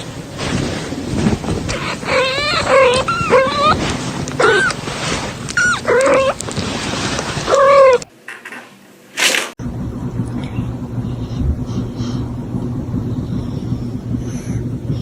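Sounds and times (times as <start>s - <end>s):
dog whining and yipping: 1.7s - 4.9s, 5.5s - 6.4s, 7.4s - 8.1s.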